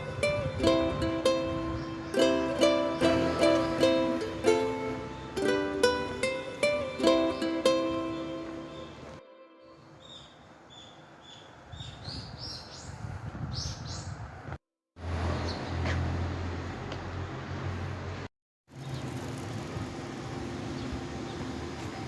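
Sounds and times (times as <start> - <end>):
small birds chirping: 0.0 - 9.2, 9.8 - 14.4, 18.7 - 19.4, 20.7 - 21.6.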